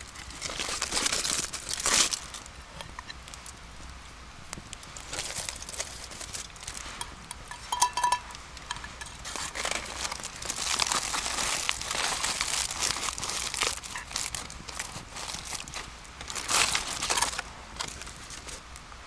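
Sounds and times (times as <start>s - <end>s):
crinkling handling noise: 0.0s - 19.0s
ringing clinks: 7.3s - 8.8s.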